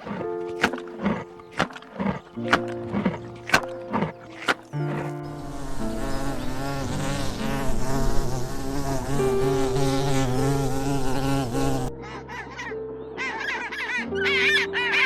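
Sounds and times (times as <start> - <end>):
flying insect buzzing: 4.3 - 11.9.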